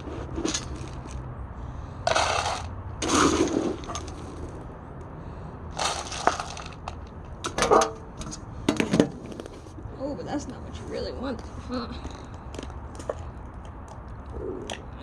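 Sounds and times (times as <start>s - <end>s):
short scraping noises: 2.0s - 4.5s.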